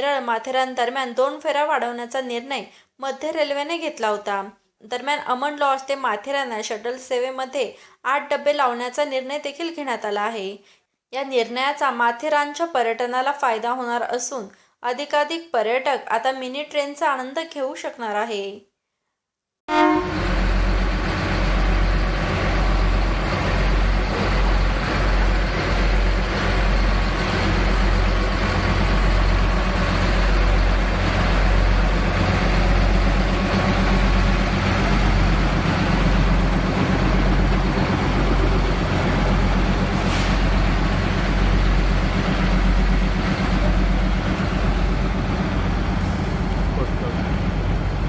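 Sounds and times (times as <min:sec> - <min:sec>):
large vehicle engine running: 0:20.0 - 0:48.0.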